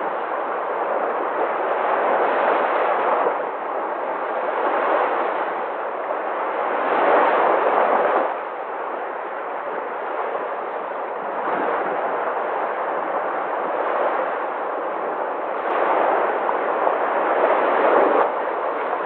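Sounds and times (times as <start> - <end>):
sea waves surf: 0.0 - 19.0.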